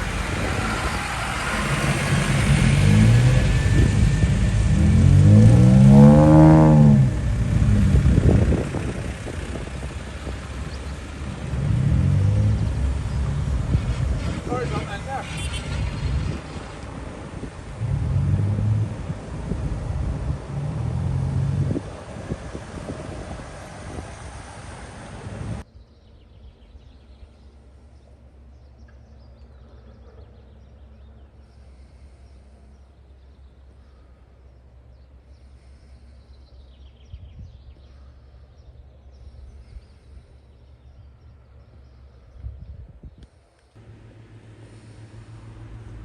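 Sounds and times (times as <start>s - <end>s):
tractor engines throbbing: 0.0s - 25.7s, 43.7s - 46.0s
low engine hum: 0.0s - 46.0s.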